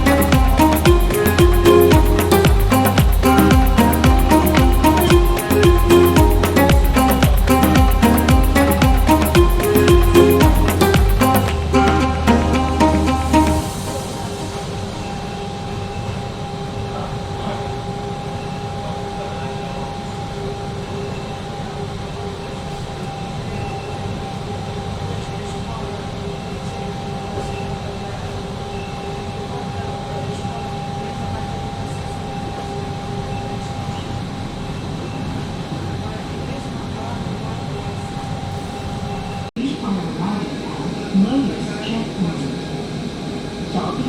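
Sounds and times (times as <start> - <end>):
constant whine: 0.0 - 44.0
train rumble and hiss: 11.5 - 44.0.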